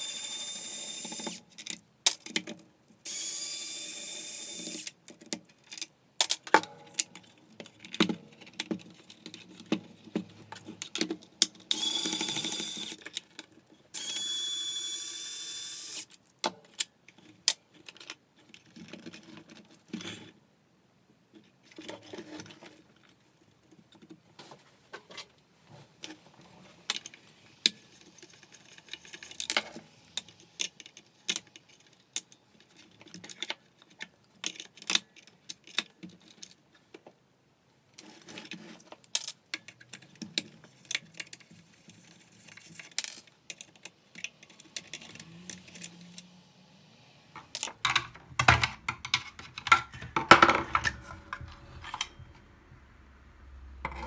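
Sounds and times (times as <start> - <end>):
screws and parts clicking: 10.9 - 13.3, 14.0 - 16.2
electric screwdriver whining: 11.7 - 13.0, 14.0 - 16.0.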